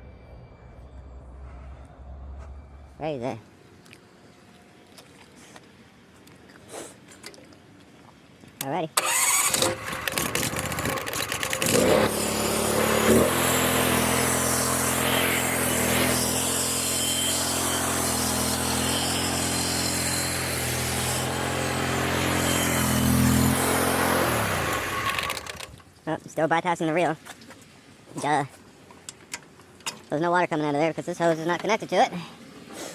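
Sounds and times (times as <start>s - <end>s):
pressure washer engine running: 9.4s - 25.7s.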